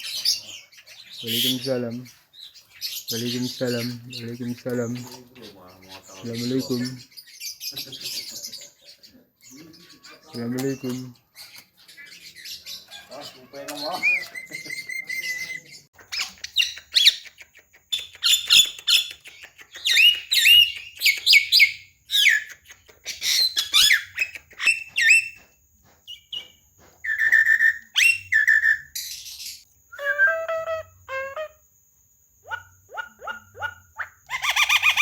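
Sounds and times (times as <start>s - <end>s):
myna chattering and chirping: 0.0s - 25.4s, 32.4s - 35.0s.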